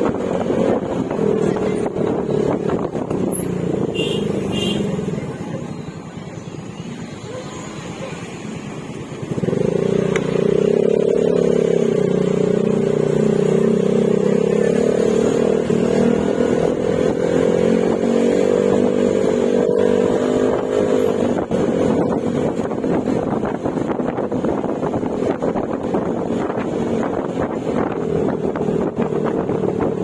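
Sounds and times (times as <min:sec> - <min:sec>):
scooter engine revving and droning: 0:07.3 - 0:30.0.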